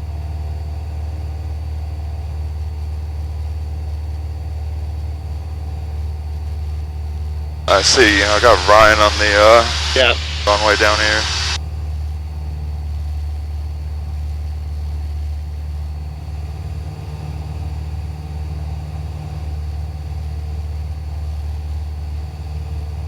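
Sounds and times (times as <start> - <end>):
propeller plane engine droning: 7.7 - 11.6.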